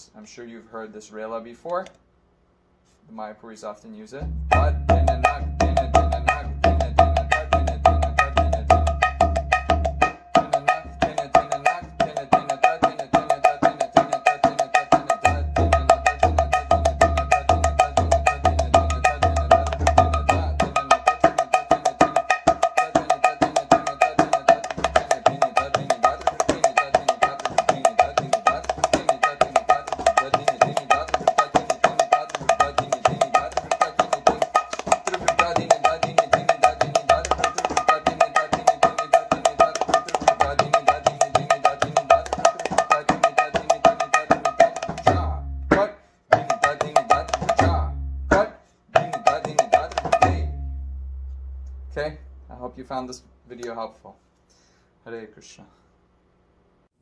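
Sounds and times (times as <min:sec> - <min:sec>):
deep bass drum strokes: 0:04.2 - 0:06.3
hand drum fast strokes: 0:04.2 - 0:50.5.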